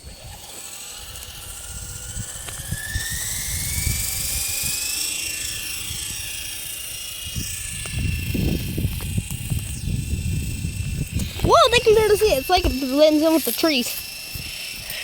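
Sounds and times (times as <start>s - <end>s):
toy helicopter motor whining: 0.0s - 15.0s.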